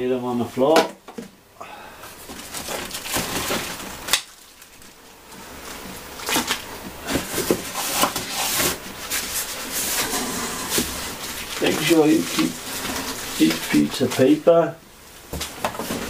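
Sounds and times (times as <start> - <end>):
cardboard packaging rustling: 2.1 - 14.6.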